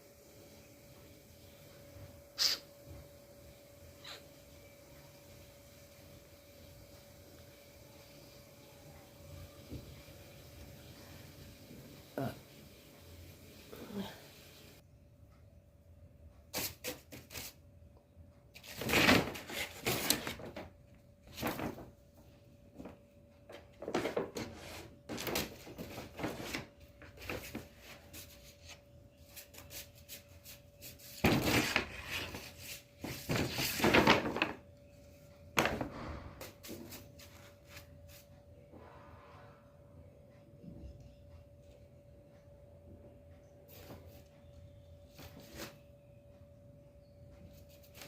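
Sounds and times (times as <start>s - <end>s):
paper bag rustling and crinkling: 21.3s - 22.0s, 23.8s - 28.4s, 31.0s - 34.6s.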